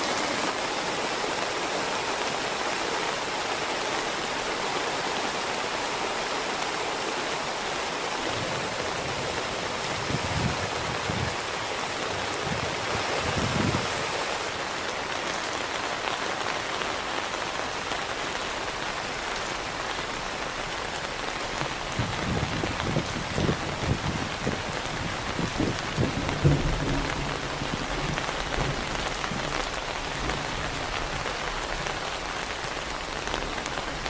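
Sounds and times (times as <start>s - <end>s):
heavy rain falling: 0.0s - 34.0s
low thunder rumbles: 21.9s - 29.6s.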